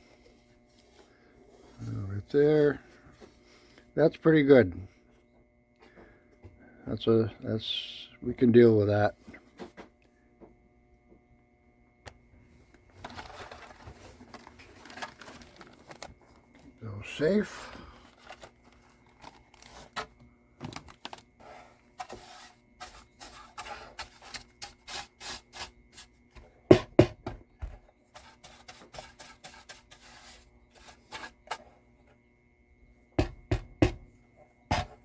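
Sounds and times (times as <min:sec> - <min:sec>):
loud knock on workbench: 0:26.7 - 0:27.4, 0:33.2 - 0:34.1.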